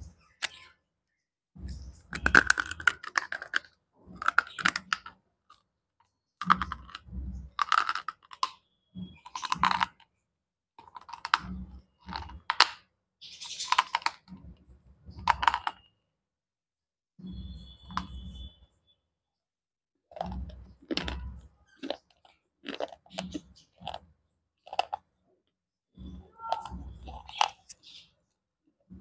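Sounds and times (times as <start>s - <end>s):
slate pencil being chewed: 20.1s - 24.0s, 24.7s - 25.0s, 26.6s - 27.8s.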